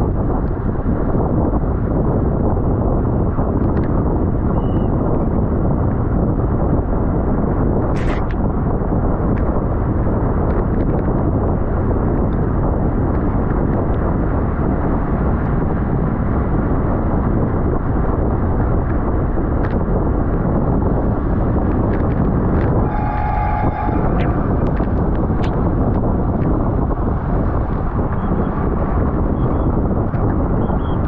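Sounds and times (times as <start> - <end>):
wind rushing over microphone: 0.0 - 31.0
high steady tone: 22.7 - 25.8.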